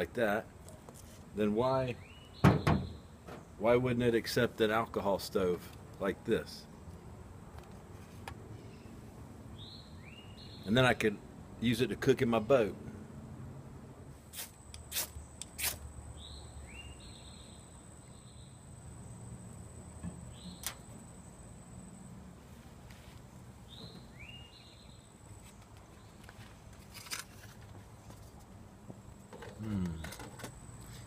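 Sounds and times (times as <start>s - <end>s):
bird chirping: 1.9s - 3.6s, 8.6s - 10.8s, 15.1s - 19.4s, 20.1s - 21.5s, 23.6s - 26.4s.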